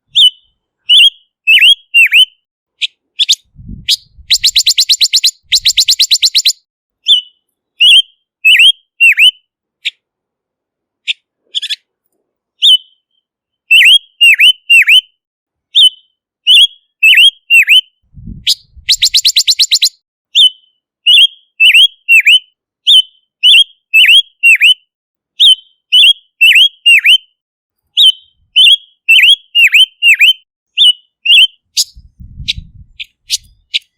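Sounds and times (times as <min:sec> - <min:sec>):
bird whistling sliding notes: 0:03.2 - 0:09.3.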